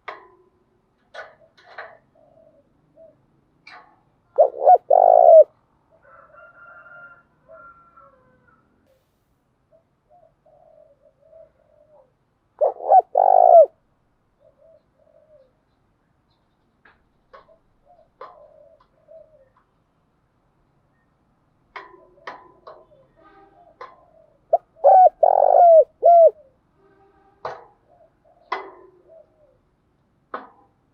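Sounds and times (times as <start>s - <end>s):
dove cooing: 1.1s - 6.1s, 9.7s - 13.8s, 14.4s - 15.6s, 17.3s - 19.6s, 21.8s - 26.6s, 27.8s - 29.7s.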